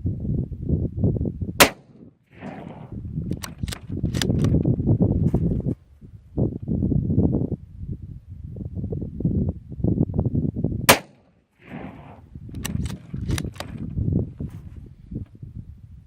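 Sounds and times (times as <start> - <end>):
rifle shot: 1.6 - 4.5, 10.9 - 13.7
quick sharp clicks: 12.5 - 13.8.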